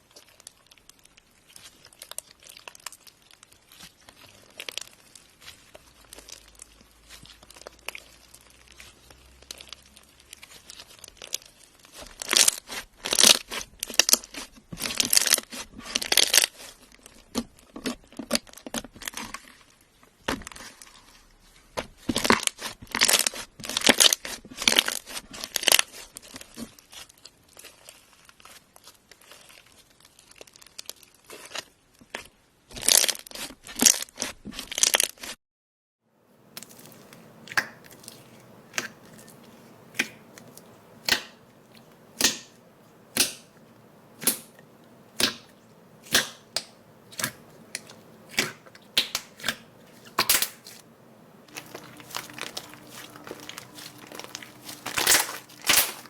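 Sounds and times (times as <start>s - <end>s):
sharp pops and snaps: 36.5s - 56.0s
slime crackling when squeezed: 36.5s - 56.0s.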